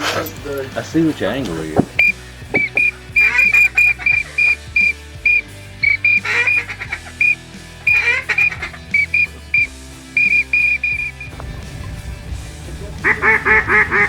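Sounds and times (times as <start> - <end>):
ducks quacking: 1.2 - 14.0
duck call whistle toots and trills: 2.0 - 11.3, 13.0 - 14.0.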